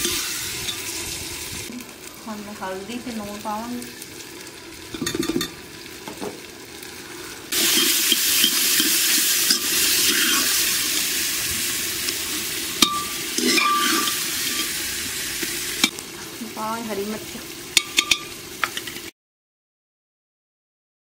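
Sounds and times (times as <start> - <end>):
masala sizzling in a pot: 0.0 - 19.1
metal ladle scraping and knocking pot: 7.6 - 10.6, 12.8 - 14.8, 17.8 - 19.0.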